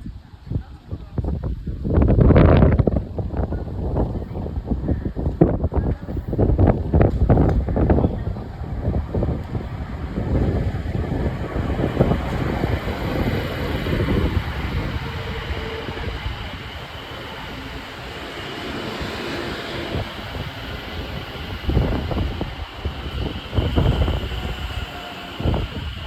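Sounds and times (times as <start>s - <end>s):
wind buffeting microphone: 0.0s - 26.0s
train rushing hum: 1.2s - 26.0s
faint whining tones: 7.2s - 26.0s.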